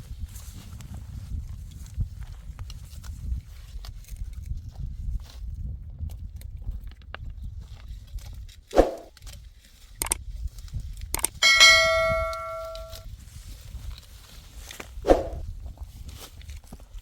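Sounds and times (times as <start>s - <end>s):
loud metallic ring: 11.4s - 13.0s.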